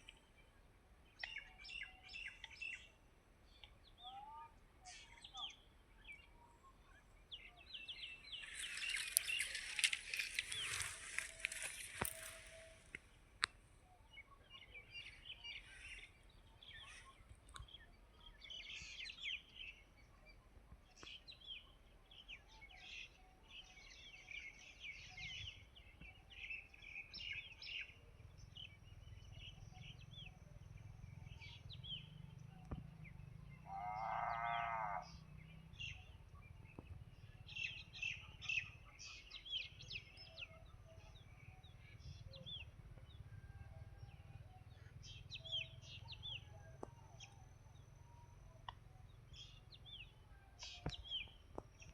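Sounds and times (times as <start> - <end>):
small birds chirping: 0.0 - 51.9
low steady rumble: 27.2 - 33.8, 34.5 - 51.9
drawn-out pitched bird call: 31.1 - 51.8.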